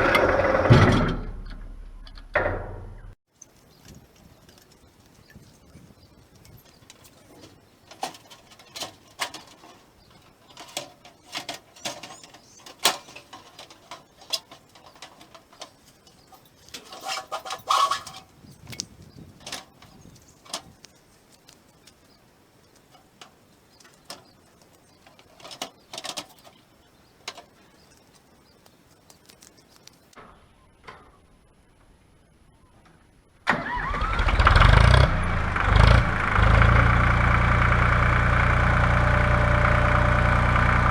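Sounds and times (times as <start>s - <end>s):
tractor engine running: 0.0s - 29.7s, 33.6s - 40.9s
clicks and knocks of handling: 3.3s - 30.2s.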